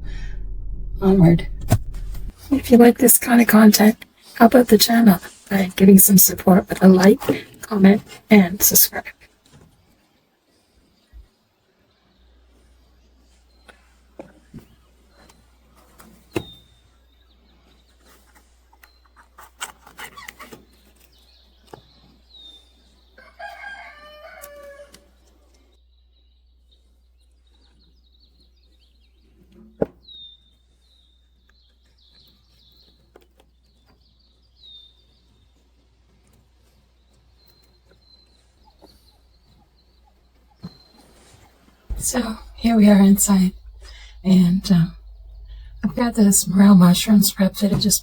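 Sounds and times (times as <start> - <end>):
birds chirping: 41.9 - 48.0.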